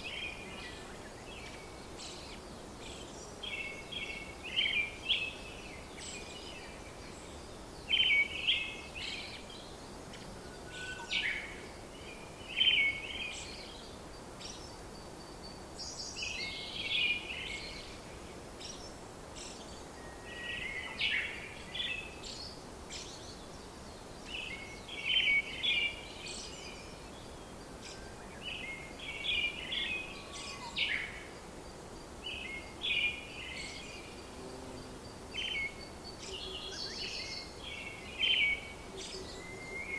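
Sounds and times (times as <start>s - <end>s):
steady background hiss: 0.0s - 39.9s
birds chirping: 32.2s - 39.9s.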